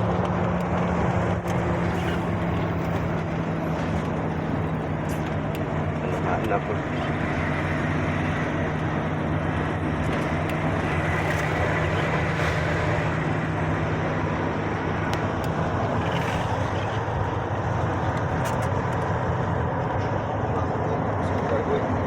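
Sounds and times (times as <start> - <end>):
road noise: 0.0 - 22.0
truck engine droning: 0.0 - 22.0.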